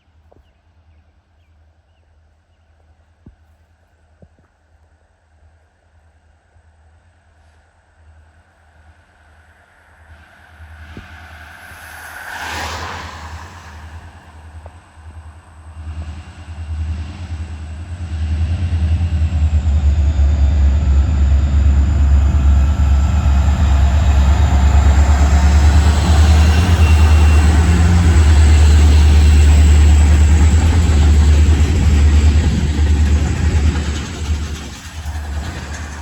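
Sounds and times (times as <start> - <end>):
freight train diesel rumble: 13.1 - 36.0.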